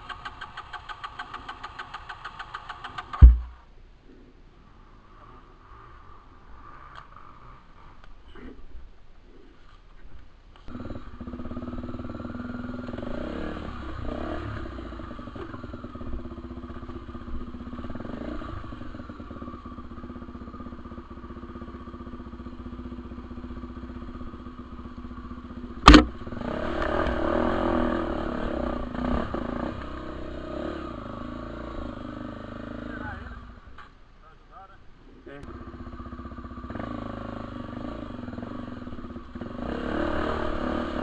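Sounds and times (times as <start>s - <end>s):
dirt bike engine running: 0.0s - 3.6s, 10.7s - 33.3s, 35.5s - 41.0s
sharp knock: 3.2s - 3.6s, 25.8s - 26.2s.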